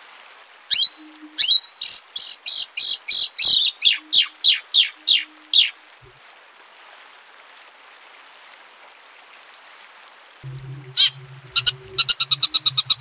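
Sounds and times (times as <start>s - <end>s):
songbird singing: 0.7s - 6.1s, 10.4s - 13.0s.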